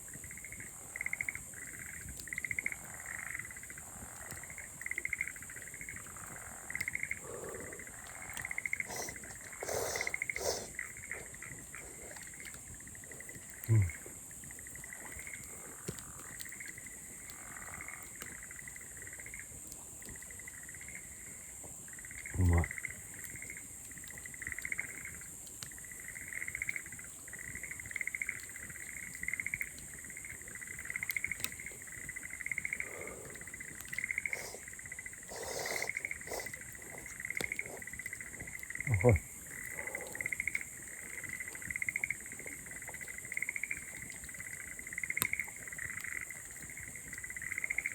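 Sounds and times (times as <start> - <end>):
cricket chirping: 0.0 - 47.9
insects trilling: 0.0 - 47.9
person grunting: 38.9 - 39.2.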